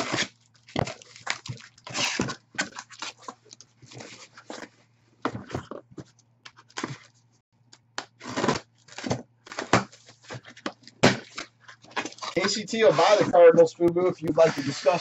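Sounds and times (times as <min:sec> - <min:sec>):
card packaging tearing and rustling: 0:00.0 - 0:04.6, 0:08.1 - 0:13.3.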